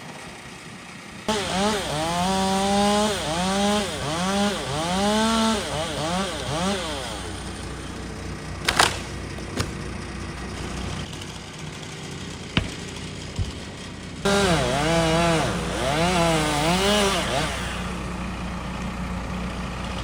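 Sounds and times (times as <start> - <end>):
chainsaw cutting wood: 1.3 - 18.4
sharp knocks or cracks: 12.6 - 14.2.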